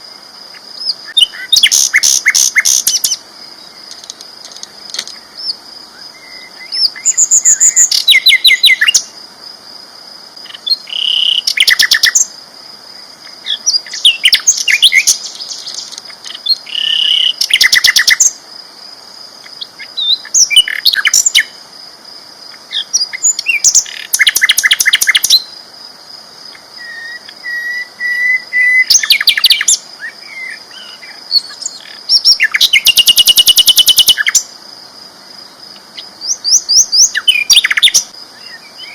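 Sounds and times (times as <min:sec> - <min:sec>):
bird song trills and whistles: 0:00.8 - 0:03.2, 0:05.2 - 0:09.1, 0:10.6 - 0:12.3, 0:13.5 - 0:18.4, 0:19.6 - 0:21.5, 0:22.7 - 0:25.5, 0:26.8 - 0:34.5, 0:36.0 - 0:38.9.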